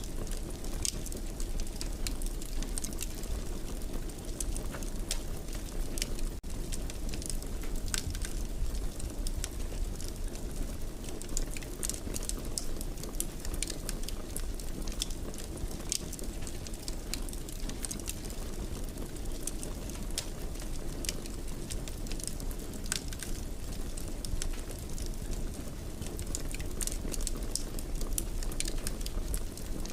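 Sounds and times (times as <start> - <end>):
wood fire crackling and popping: 0.0 - 29.9.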